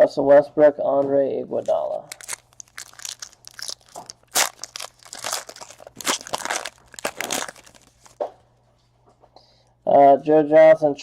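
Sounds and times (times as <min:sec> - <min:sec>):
cards and foil wrapper crinkling: 0:01.6 - 0:08.2.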